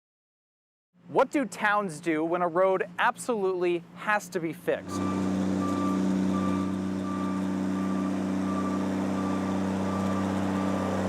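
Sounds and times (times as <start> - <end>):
diesel engine running: 1.2 - 11.0
reversing alarm beeping: 4.8 - 11.0.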